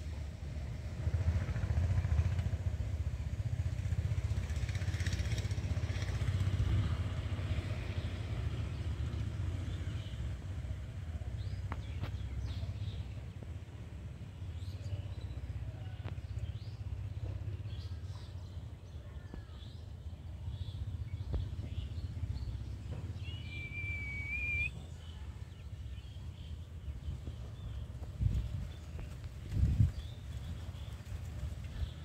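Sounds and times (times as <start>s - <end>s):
steady low rumble: 5.7s - 32.0s
drawn-out whistled note: 23.3s - 24.8s.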